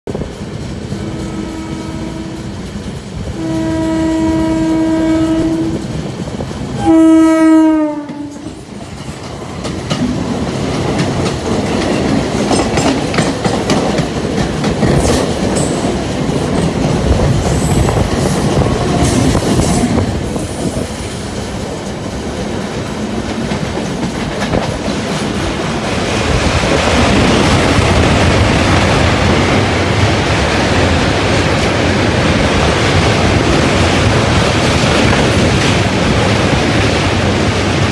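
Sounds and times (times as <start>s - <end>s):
train wheels clickety-clack: 0.1s - 37.9s
train horn blasts: 0.9s - 2.6s, 3.3s - 5.9s, 6.8s - 8.6s.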